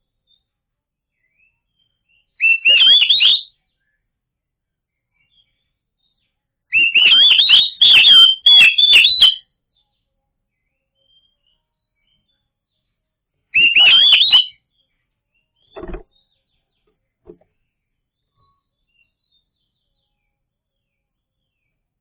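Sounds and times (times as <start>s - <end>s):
bird whistling song: 1.1s - 4.0s, 6.7s - 9.4s, 13.6s - 14.8s
sharp bird clicks: 15.8s - 16.1s.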